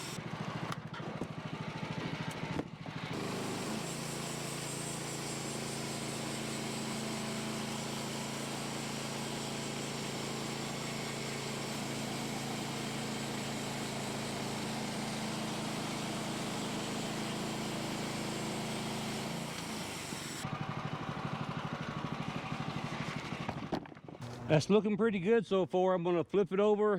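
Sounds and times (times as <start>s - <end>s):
gasoline engine running: 20.4s - 24.6s.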